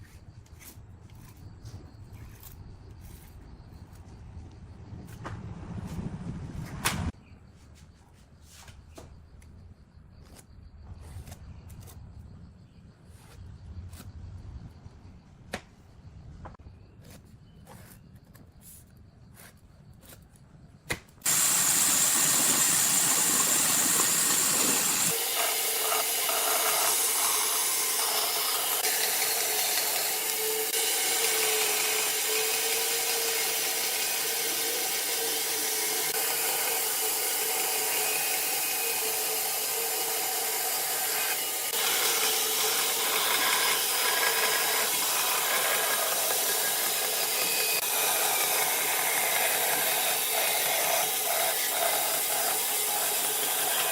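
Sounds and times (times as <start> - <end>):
power tool working wood: 21.3 - 53.9.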